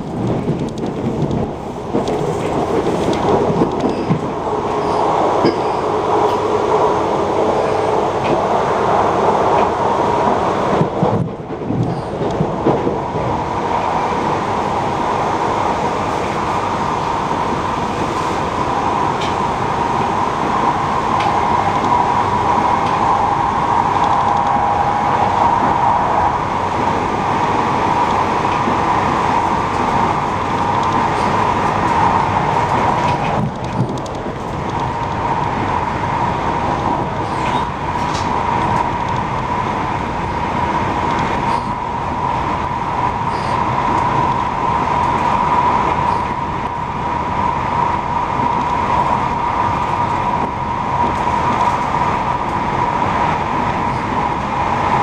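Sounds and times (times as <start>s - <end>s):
train wheels rolling on rail: 0.0s - 55.0s.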